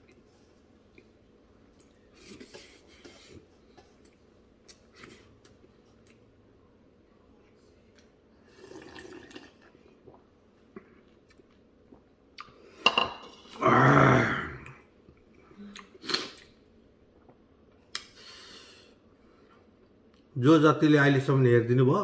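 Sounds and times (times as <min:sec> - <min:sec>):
person slurping soup: 0:08.4 - 0:09.7.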